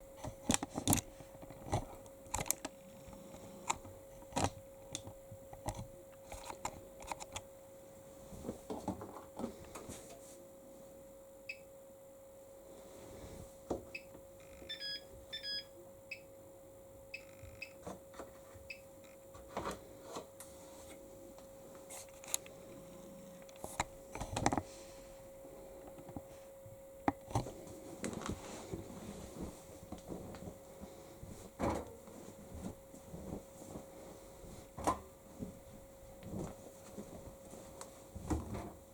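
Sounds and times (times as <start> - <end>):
faint steady hum: 0.0 - 38.9
short electronic beeps: 14.0 - 16.3, 17.2 - 17.8.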